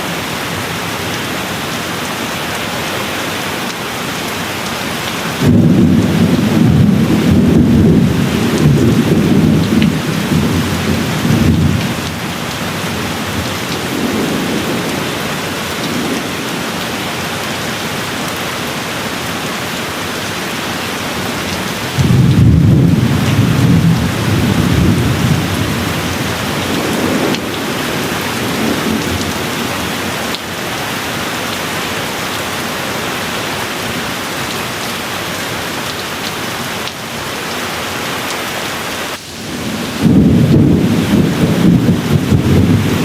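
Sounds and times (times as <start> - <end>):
rain hissing: 0.0 - 31.8, 32.5 - 43.0
thunder rolling: 5.4 - 17.1, 21.9 - 30.0, 39.1 - 43.0.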